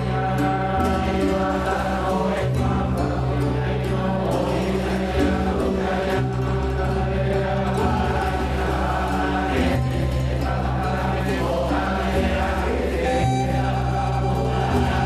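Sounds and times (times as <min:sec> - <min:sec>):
chant-like choir voices: 0:00.0 - 0:15.0.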